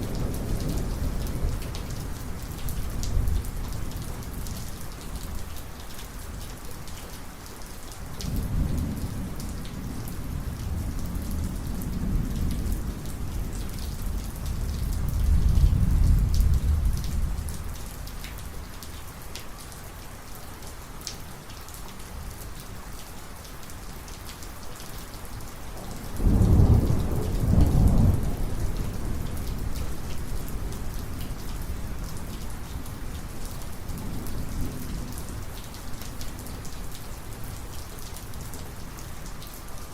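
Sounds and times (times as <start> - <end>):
heavy rain: 0.0 - 39.9
thunder rumbling: 26.1 - 31.2.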